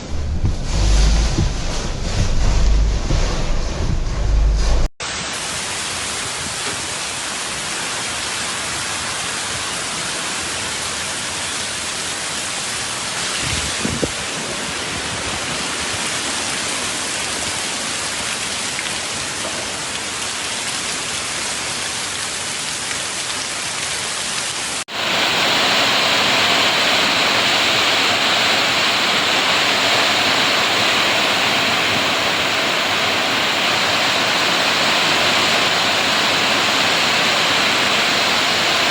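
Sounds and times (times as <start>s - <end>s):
low rumble: 0.0s - 4.9s
heavy rain pouring: 0.0s - 38.9s.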